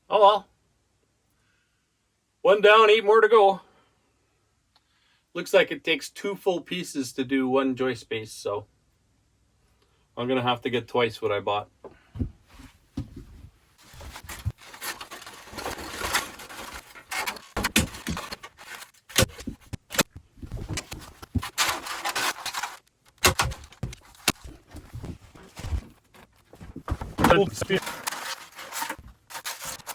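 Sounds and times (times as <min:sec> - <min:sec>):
foam scraping and rustling: 0:13.8 - 0:29.9
sharp clicks and knocks: 0:16.0 - 0:25.2.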